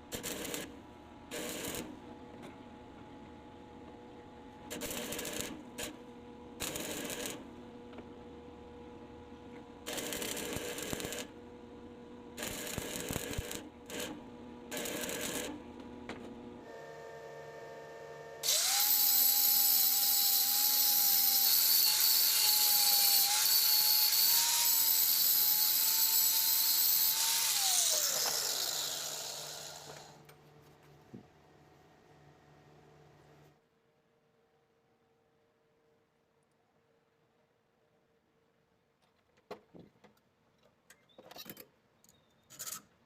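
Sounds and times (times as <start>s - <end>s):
power tool whining and spinning down: 16.7s - 30.2s.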